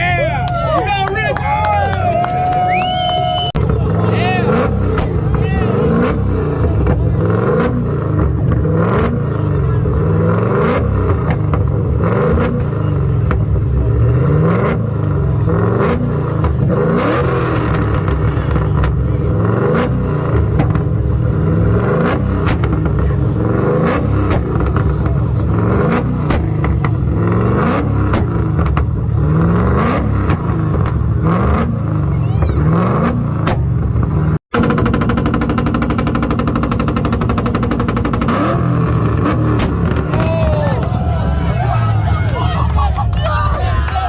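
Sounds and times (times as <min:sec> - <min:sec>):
car engine revving: 0:00.0 - 0:44.0
short sharp cracks: 0:39.3 - 0:40.2.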